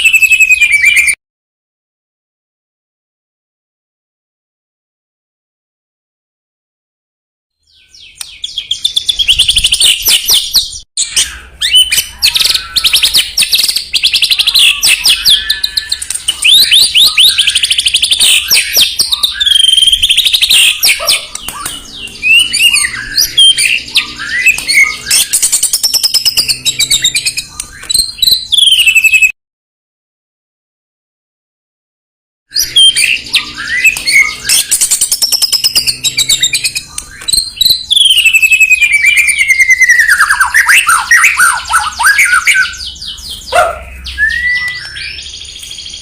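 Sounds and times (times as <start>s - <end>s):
songbird singing trills and whistles: 0.0s - 1.2s, 7.6s - 29.3s, 32.5s - 46.0s.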